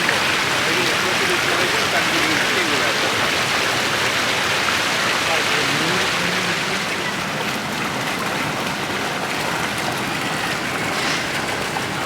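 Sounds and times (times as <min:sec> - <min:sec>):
water hissing: 0:10.8 - 0:12.0.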